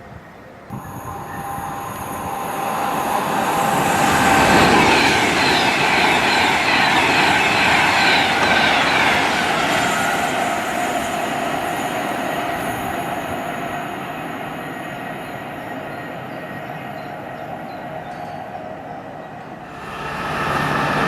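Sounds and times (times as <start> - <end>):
high steady tones: 0.7 - 16.3
train wheels rushing on rail: 0.7 - 21.0.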